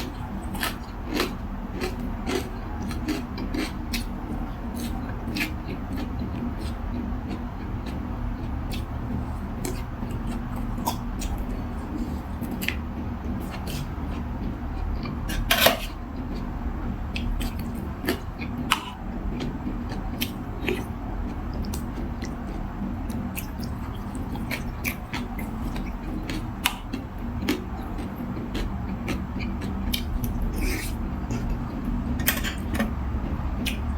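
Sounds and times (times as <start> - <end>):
low background hum: 0.0 - 33.9
utensils clicking on bowl: 32.2 - 32.9.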